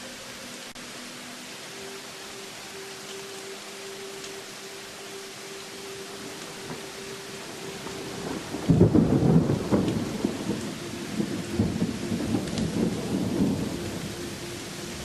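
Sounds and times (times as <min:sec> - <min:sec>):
rain hissing: 0:00.0 - 0:15.0
thunder clap and rumble: 0:07.8 - 0:15.0.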